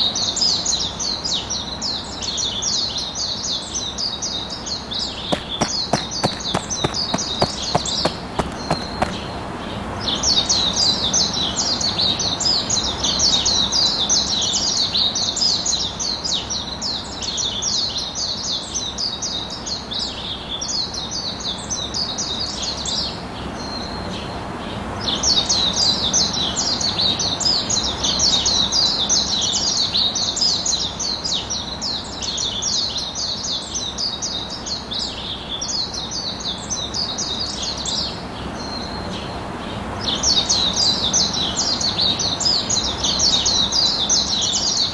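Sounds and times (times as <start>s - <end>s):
birds chirping: 4.6s - 9.7s.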